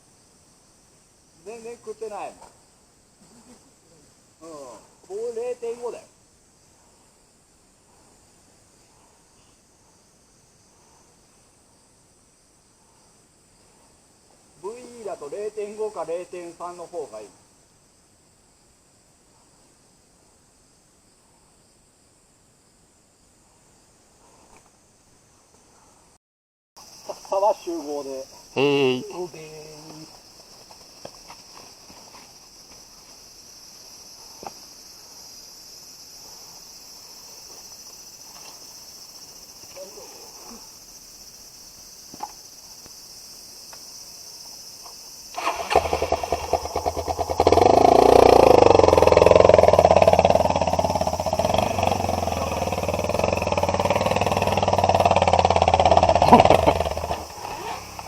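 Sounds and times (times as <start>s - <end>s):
off-road motorcycle engine revving: 45.4s - 58.0s.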